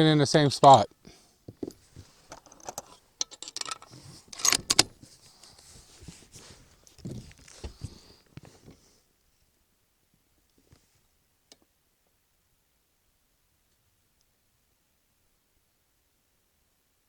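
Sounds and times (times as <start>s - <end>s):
metallic clicks of rifle handling: 2.3s - 4.9s.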